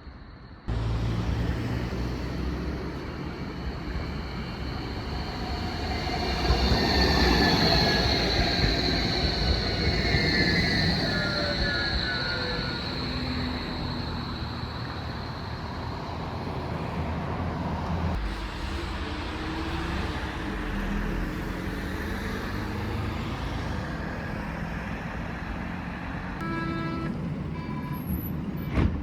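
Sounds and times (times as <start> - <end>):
tram rumble and road noise: 0.0 - 29.0
high whine: 26.4 - 27.3.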